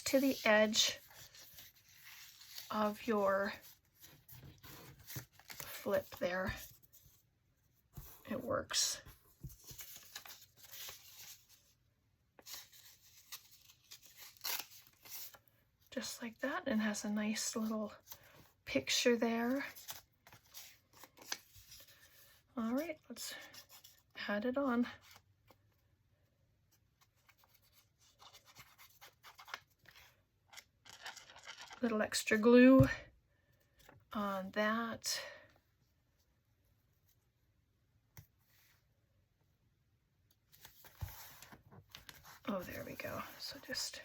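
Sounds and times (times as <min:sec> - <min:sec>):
paper rustling: 0:00.0 - 0:07.2, 0:09.1 - 0:11.7.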